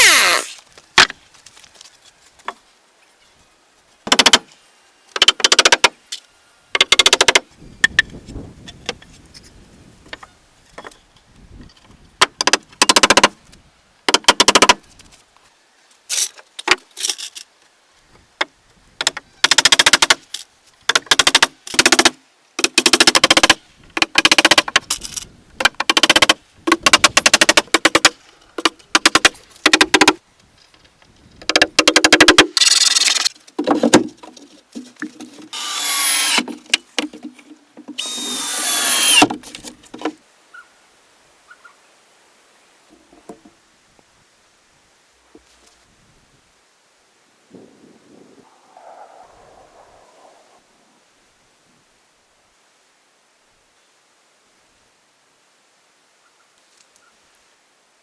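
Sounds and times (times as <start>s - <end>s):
power tool rattling: 35.5s - 36.5s, 38.0s - 39.7s.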